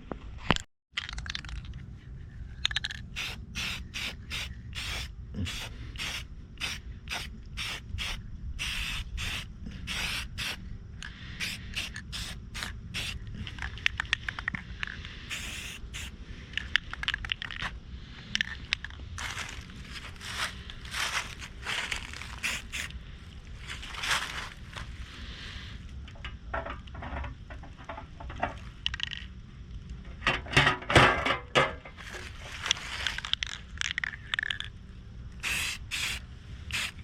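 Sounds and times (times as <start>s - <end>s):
spray paint can hissing: 2.6s - 10.6s, 11.4s - 16.1s, 20.5s - 22.9s, 35.4s - 37.0s.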